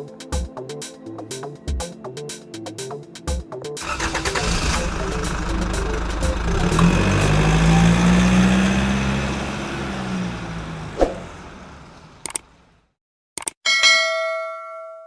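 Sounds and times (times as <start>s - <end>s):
truck engine humming: 3.8s - 12.8s
sharp click: 12.2s - 12.4s, 13.4s - 13.6s.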